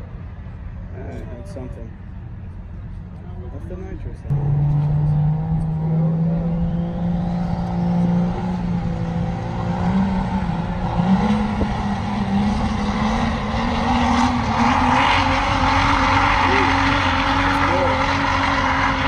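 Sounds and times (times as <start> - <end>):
diesel truck engine revving: 4.3 - 19.0.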